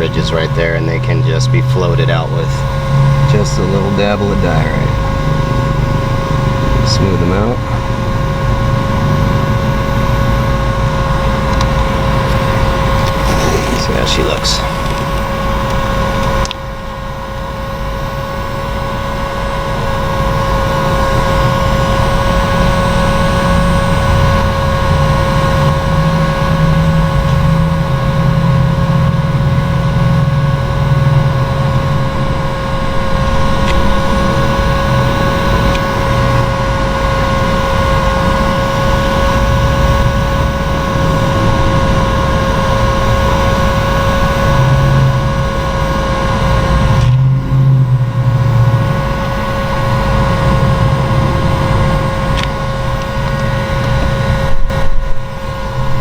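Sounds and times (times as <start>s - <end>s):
heat gun motor whine: 10.0s - 16.7s
air blowing: 11.2s - 16.2s.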